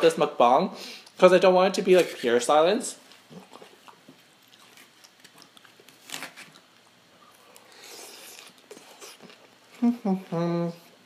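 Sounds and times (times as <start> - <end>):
person chewing salad crunching: 3.1 - 10.4.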